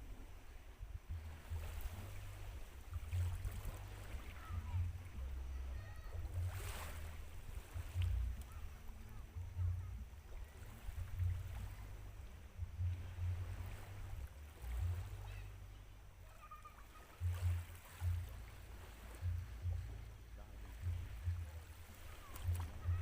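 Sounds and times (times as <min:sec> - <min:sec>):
wind buffeting microphone: 0:00.0 - 0:16.2
faint water: 0:00.0 - 0:23.0.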